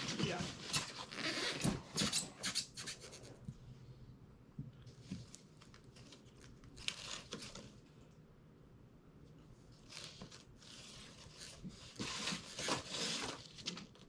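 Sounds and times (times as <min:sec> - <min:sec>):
packaging rustling and crinkling: 0:09.8 - 0:14.0.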